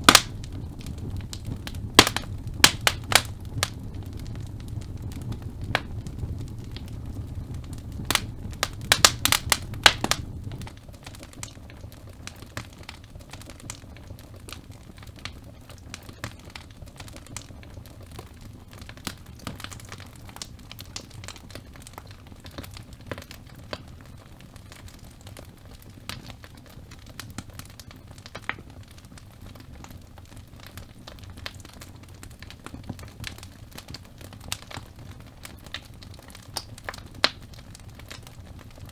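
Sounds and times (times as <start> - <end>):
sharp pops of burning logs: 0.0 - 13.8, 30.6 - 38.9
logs crackling in fireplace: 0.0 - 38.9
low rumble of flames: 0.0 - 38.9.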